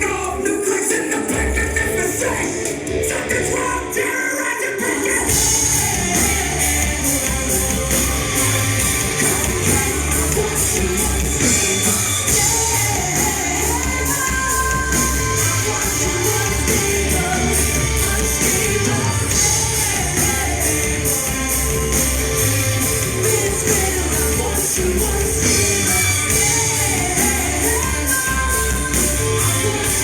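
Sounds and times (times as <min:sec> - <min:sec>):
distorted guitars: 0:00.0 - 0:30.0
drums with crashing cymbals: 0:04.7 - 0:30.0
bass guitar: 0:05.2 - 0:30.0.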